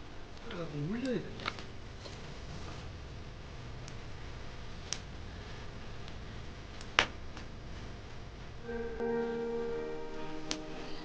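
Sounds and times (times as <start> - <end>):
campfire crackling: 0.1 - 10.8
fire popping: 0.4 - 8.2
steady musical notes: 8.6 - 11.0.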